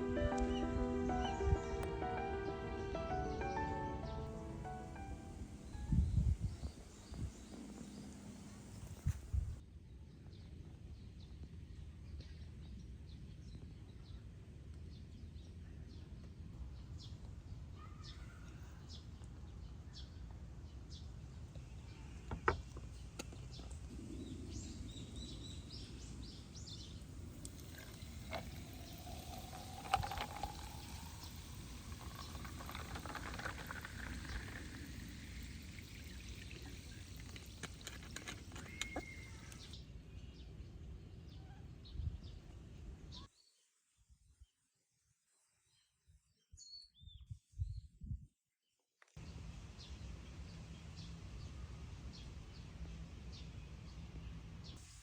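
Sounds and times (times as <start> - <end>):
faint bird chirps: 23.6 - 40.4
liquid pouring into container: 27.4 - 39.7.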